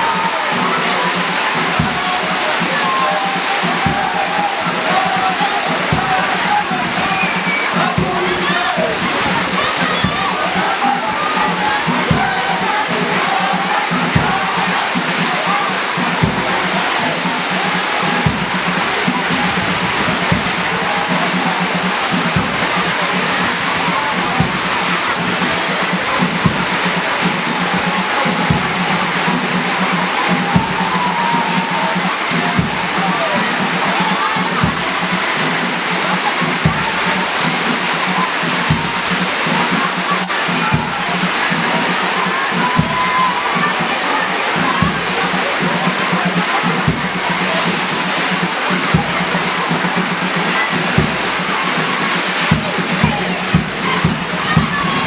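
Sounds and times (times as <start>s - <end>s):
lighter drum strokes: 0.0s - 39.8s
deep drum strokes: 0.0s - 55.0s
heavy rain pouring: 0.0s - 55.0s
marching band music: 0.0s - 55.0s.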